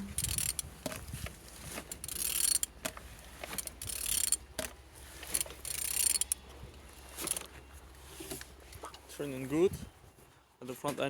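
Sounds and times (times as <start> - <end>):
engine internal mechanical noise: 0.0 - 9.6
ratchet wrench clicking: 0.1 - 1.0, 1.8 - 6.4, 7.2 - 7.5.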